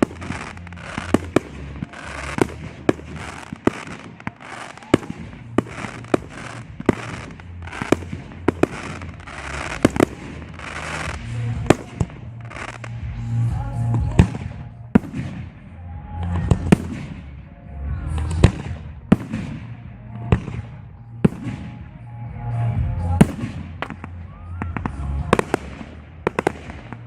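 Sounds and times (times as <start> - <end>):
firework hissing and crackling: 0.0 - 15.6
music with low bass: 0.0 - 27.0.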